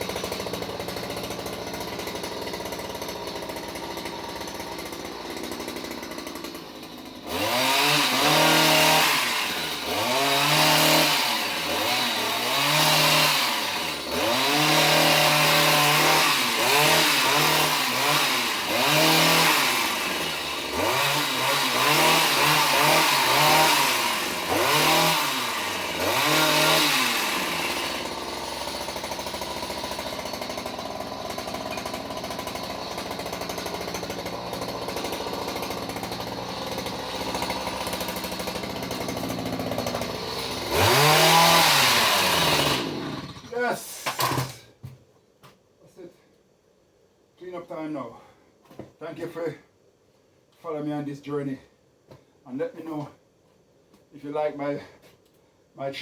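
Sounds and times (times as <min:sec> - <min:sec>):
chainsaw idling and revving: 0:00.0 - 0:44.6.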